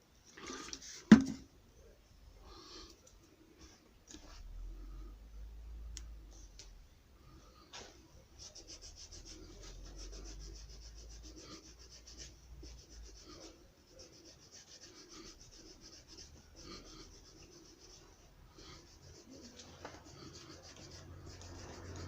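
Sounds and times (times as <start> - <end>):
hand rubbing strokes on a shoe: 8.4 - 22.0.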